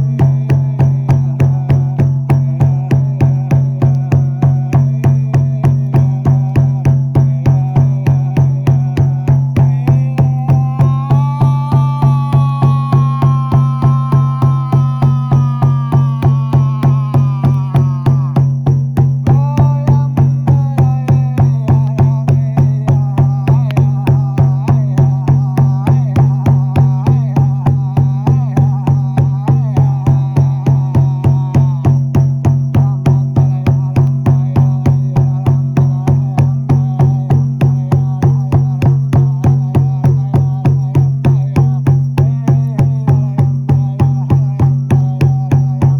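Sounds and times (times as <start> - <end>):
frame drum beating: 0.0 - 34.4.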